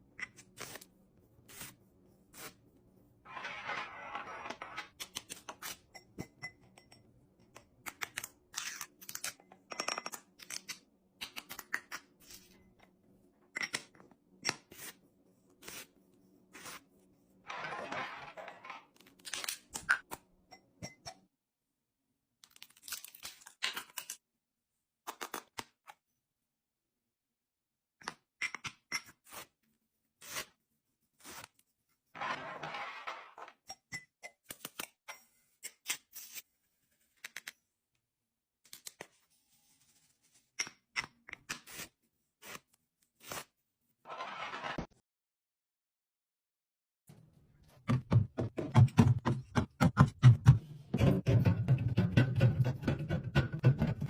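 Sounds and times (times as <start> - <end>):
items clicking and tapping: 47.8 - 54.0.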